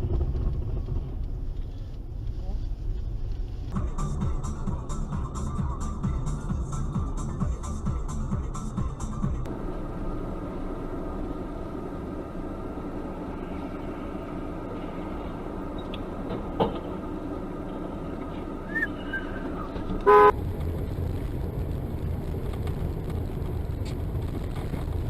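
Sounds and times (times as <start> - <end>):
car engine and road rumble: 0.0 - 25.0
car horn blast: 20.0 - 20.3.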